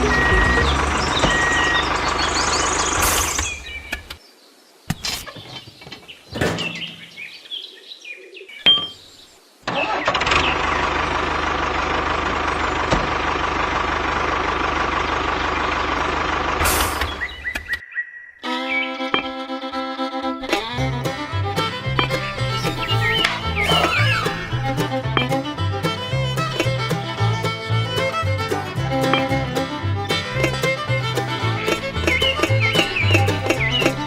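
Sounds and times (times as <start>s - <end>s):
vehicle engine noise: 0.0s - 4.0s, 9.7s - 17.8s, 20.4s - 34.0s
sharp knocks: 20.4s - 34.0s.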